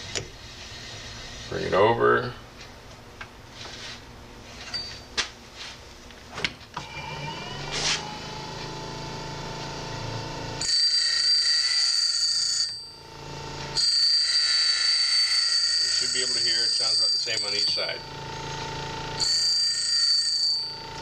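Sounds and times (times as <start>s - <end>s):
high-pitched ringing grind: 4.6s - 5.1s, 6.8s - 21.0s
sharpener motor running: 6.8s - 21.0s.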